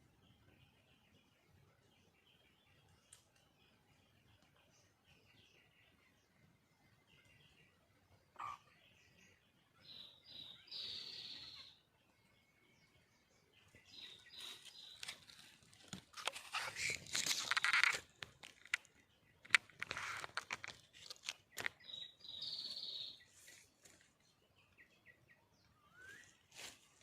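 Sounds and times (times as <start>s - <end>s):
high bird chirps: 9.8s - 11.8s, 13.7s - 23.6s
dry leaves rustling and crunching: 14.0s - 18.9s, 19.5s - 21.8s, 26.5s - 27.0s.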